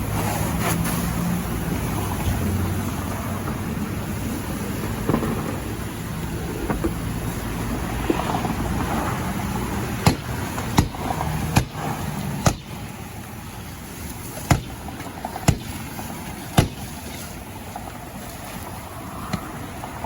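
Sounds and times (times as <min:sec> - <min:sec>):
steady rushing noise: 0:00.0 - 0:20.0
sharp pops and bangs: 0:04.8 - 0:07.3, 0:10.0 - 0:17.5.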